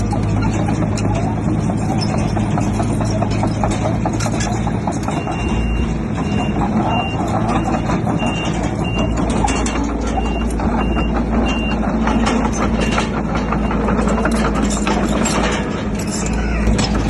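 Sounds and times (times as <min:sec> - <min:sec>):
clanking and rattling: 0:00.0 - 0:17.0
diesel machine running: 0:00.0 - 0:17.0
reversing alarm beeping: 0:05.0 - 0:14.4.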